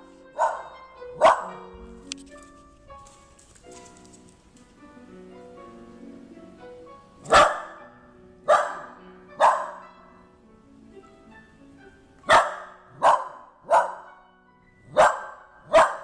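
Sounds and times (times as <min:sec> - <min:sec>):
soft instrumental music: 0:00.0 - 0:16.0
dog barking: 0:00.3 - 0:01.6, 0:07.2 - 0:10.0, 0:12.3 - 0:14.1, 0:14.9 - 0:16.0.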